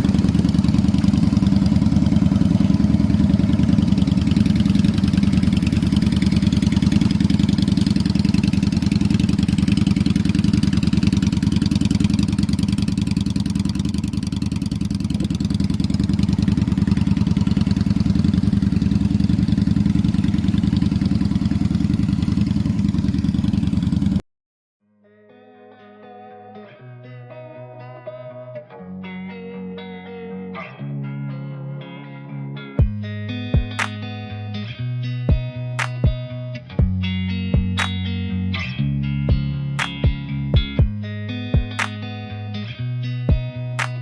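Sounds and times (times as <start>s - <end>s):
motorcycle engine idling: 0.0s - 24.2s.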